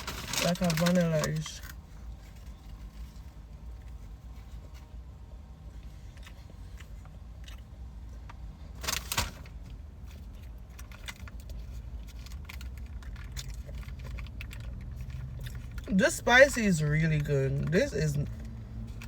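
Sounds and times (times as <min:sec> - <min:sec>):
foil wrapper crinkling: 0:00.0 - 0:03.8
low steady hum: 0:00.0 - 0:19.0
chewing clicks: 0:10.8 - 0:15.9.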